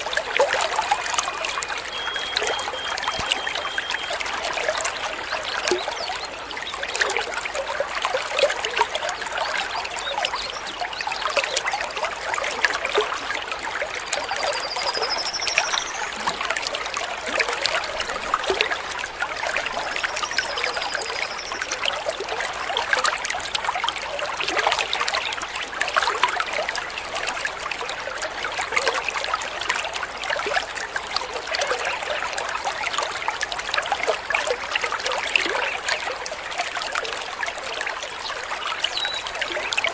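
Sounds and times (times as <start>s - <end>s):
water babbling over stones: 0.0s - 39.9s
bird whistled calls: 0.7s - 6.3s, 14.4s - 16.3s.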